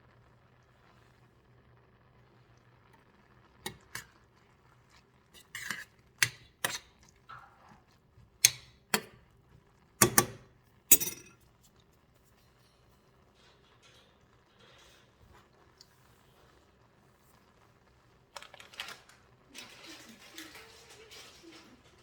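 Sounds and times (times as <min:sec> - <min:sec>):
dishes and utensils clinking: 0:03.7 - 0:04.2, 0:05.4 - 0:07.0, 0:08.4 - 0:09.2, 0:10.0 - 0:11.4, 0:18.4 - 0:22.0.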